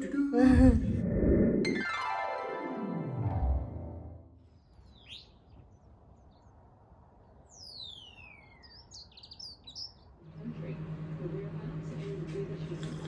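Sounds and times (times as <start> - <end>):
songbirds chirping: 4.4 - 11.8.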